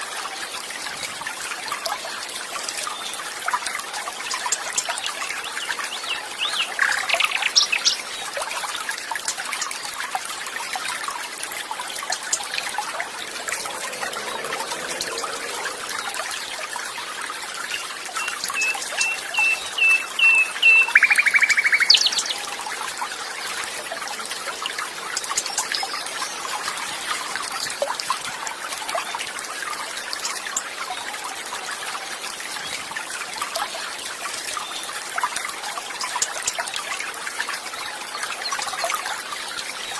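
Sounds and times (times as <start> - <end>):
water trickling: 0.0 - 39.9
birds chirping: 17.7 - 22.6.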